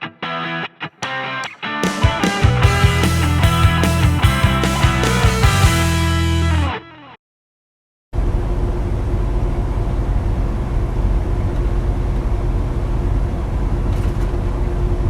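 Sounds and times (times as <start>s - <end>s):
truck road and wind roar: 8.2s - 15.0s.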